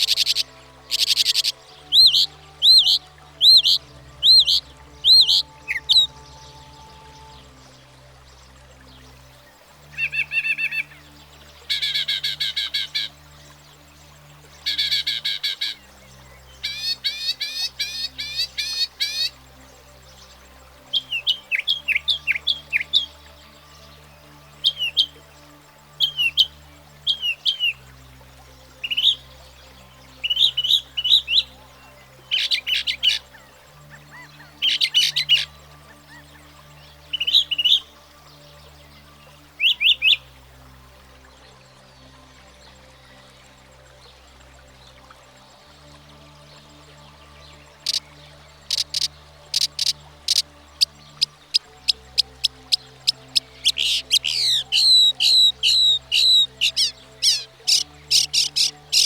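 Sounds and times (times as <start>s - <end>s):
mockingbird singing: 0.0s - 6.1s, 32.3s - 36.3s, 48.7s - 59.0s.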